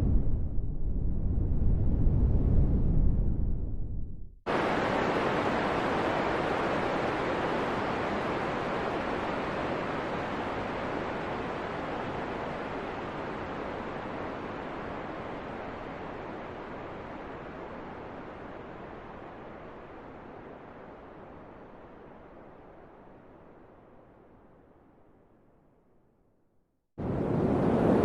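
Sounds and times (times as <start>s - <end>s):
rushing wind: 0.0s - 23.8s, 27.0s - 28.0s.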